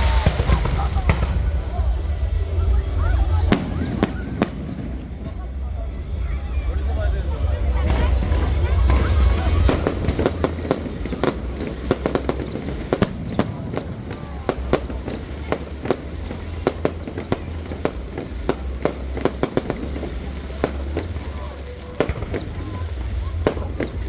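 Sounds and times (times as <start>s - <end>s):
fireworks bangs and pops: 0.0s - 2.1s, 3.4s - 5.5s, 7.7s - 24.0s.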